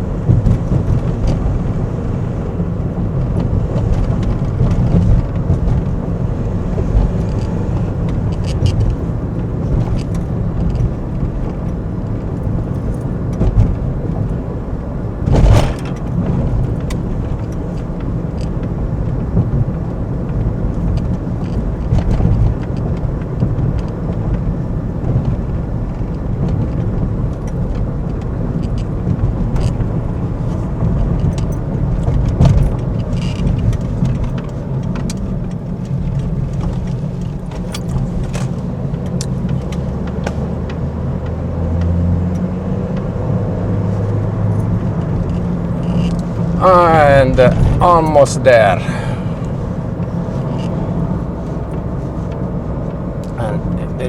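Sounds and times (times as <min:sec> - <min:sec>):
car engine and road rumble: 0:00.0 - 0:54.0
thump: 0:15.3 - 0:16.0.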